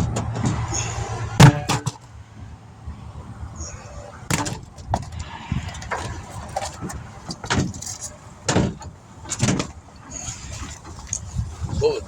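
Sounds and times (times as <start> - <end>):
equipment thumps and clunks: 1.4 - 2.1, 4.3 - 11.8
wind rumble on microphone: 2.1 - 8.1, 8.7 - 12.0.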